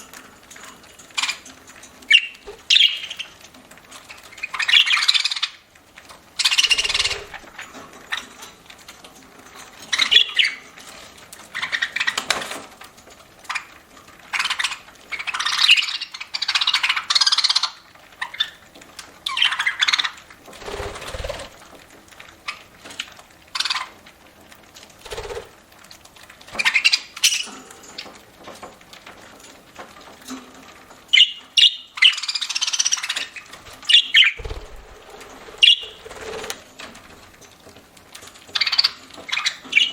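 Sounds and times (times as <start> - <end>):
budgerigars chirping and squawking: 2.1 - 3.4, 4.1 - 5.6, 6.4 - 8.3, 9.9 - 10.6, 11.5 - 12.3, 14.3 - 18.6, 19.3 - 21.5, 26.6 - 27.6, 31.2 - 36.6, 38.5 - 39.9.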